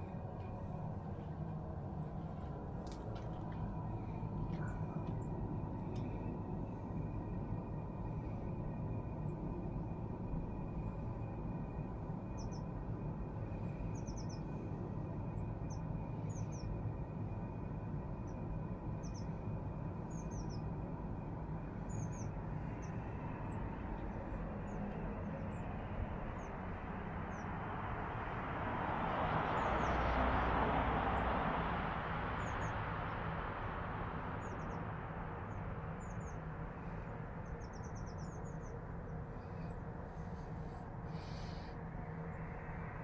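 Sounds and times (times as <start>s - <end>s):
birds chirping: 35.5s - 41.7s.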